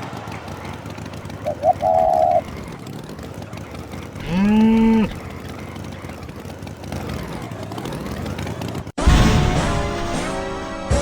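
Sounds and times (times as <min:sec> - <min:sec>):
cow mooing: 0:04.2 - 0:05.4.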